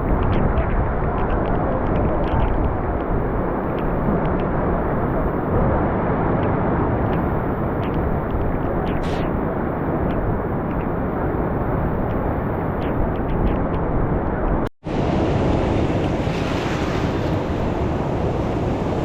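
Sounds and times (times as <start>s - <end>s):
floodwater roaring through spillway: 14.9s - 19.0s.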